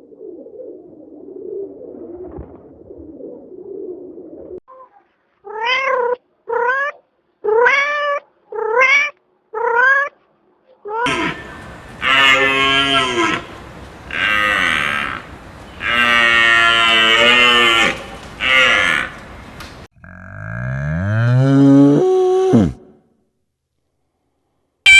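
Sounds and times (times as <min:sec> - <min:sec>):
long low animal call: 0:11.1 - 0:20.7.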